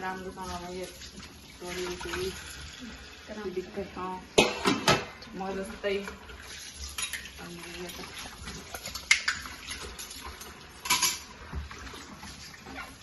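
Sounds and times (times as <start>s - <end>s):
dishes clinking: 4.4s - 5.2s, 6.9s - 7.4s, 10.8s - 11.3s.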